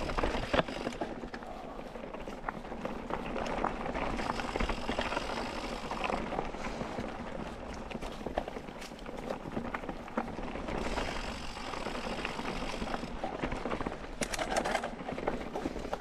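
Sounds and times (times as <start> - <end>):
bike knocks and rattles: 0.0 - 1.3, 7.9 - 16.0
bike tyres rolling on dirt: 0.0 - 16.0.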